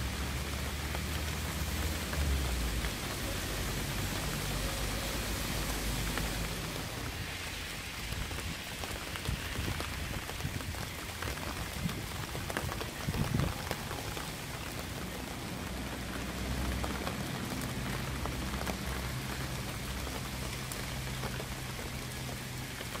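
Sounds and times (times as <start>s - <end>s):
rain falling: 0.0s - 23.0s
raindrops ticking on a surface: 0.0s - 23.0s.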